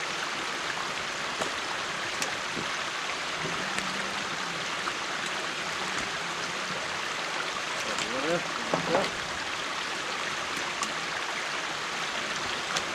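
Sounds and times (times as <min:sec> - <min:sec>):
stream water rushing: 0:00.0 - 0:12.9.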